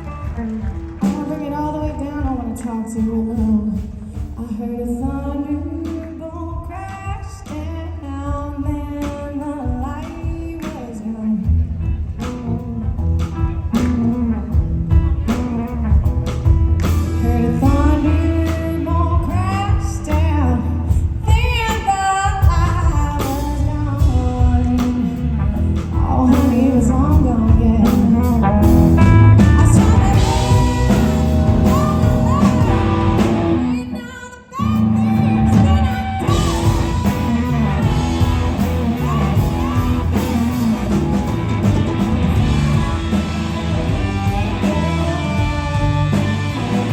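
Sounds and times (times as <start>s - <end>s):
blues-rock band playing: 0.0s - 5.0s, 5.8s - 34.0s, 34.6s - 46.9s
woman singing: 0.0s - 12.0s, 17.0s - 40.7s.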